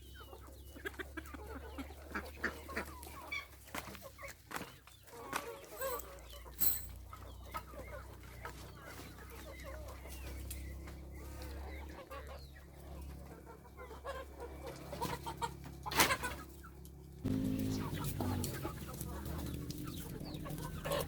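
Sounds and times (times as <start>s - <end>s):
chickens clucking: 0.0s - 21.0s
low steady hum: 12.5s - 21.0s.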